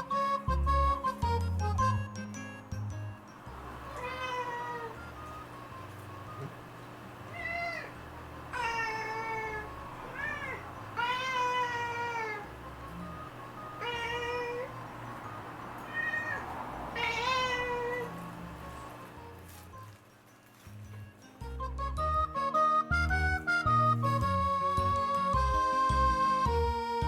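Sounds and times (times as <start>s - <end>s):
background music: 0.0s - 6.6s, 18.1s - 27.0s
cat meowing: 3.8s - 5.1s, 7.3s - 12.6s, 13.7s - 14.9s, 15.8s - 18.3s.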